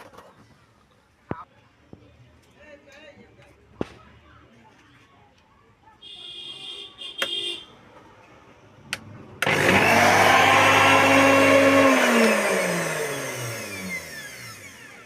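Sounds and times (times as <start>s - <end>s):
mixer grinder motor running: 9.4s - 15.0s.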